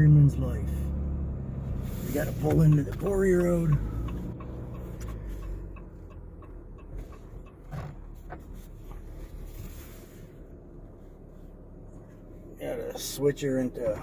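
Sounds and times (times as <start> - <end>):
pickup truck engine rumbling: 0.0 - 14.0
light ticks: 2.2 - 9.2.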